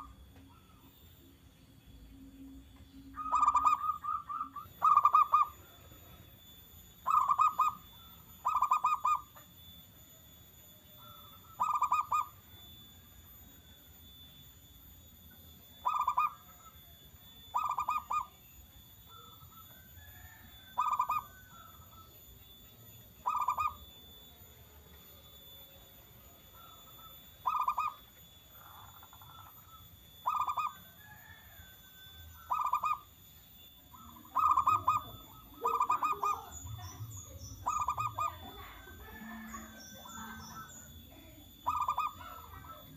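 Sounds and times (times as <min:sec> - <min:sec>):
dove cooing: 0:00.0 - 0:00.8, 0:03.0 - 0:09.8, 0:11.0 - 0:12.8, 0:15.6 - 0:22.6, 0:23.2 - 0:24.0, 0:26.2 - 0:33.2, 0:33.9 - 0:42.9.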